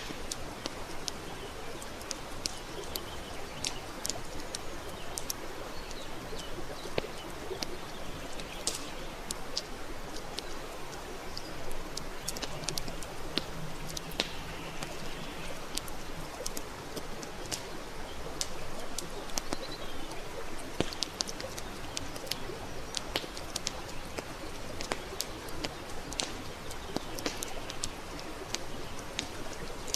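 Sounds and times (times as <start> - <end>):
campfire crackling and popping: 0.0 - 29.9.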